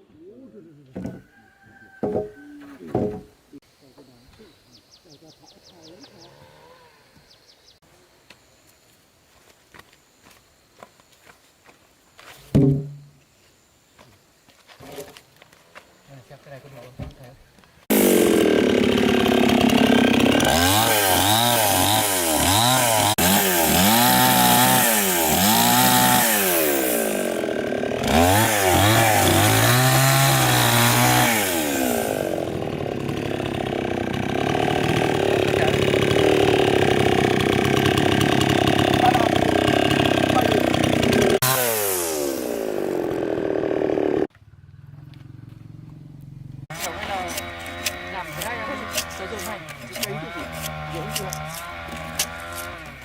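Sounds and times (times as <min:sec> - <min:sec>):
chainsaw cutting wood: 0:17.8 - 0:44.3, 0:46.7 - 0:53.0.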